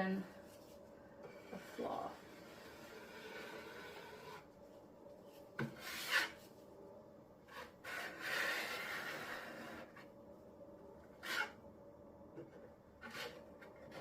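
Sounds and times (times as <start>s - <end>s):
putty knife scraping: 1.3s - 4.5s, 5.6s - 6.5s, 7.5s - 10.1s, 11.2s - 11.6s, 13.0s - 14.0s.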